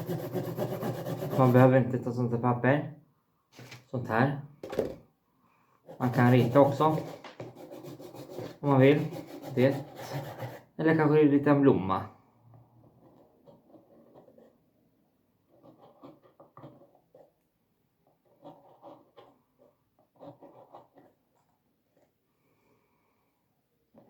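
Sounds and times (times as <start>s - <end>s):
pen scratching on paper: 0.0s - 1.7s, 5.9s - 10.8s, 12.8s - 14.7s, 15.5s - 17.4s, 18.0s - 22.1s.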